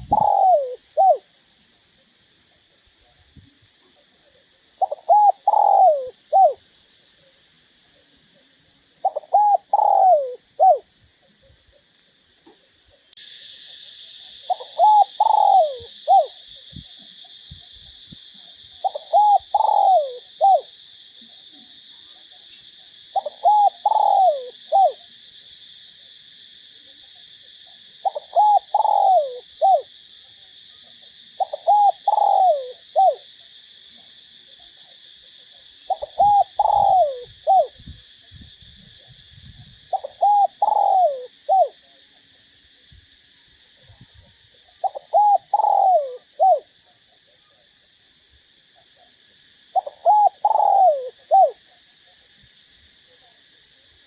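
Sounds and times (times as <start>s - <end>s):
dove cooing: 0.0s - 1.4s, 3.9s - 6.7s, 9.0s - 10.9s, 14.3s - 21.7s, 23.1s - 25.0s, 28.0s - 29.9s, 31.4s - 33.3s, 35.9s - 37.9s, 39.9s - 41.8s, 44.7s - 46.7s, 49.7s - 51.7s
high-pitched hiss: 0.0s - 54.0s.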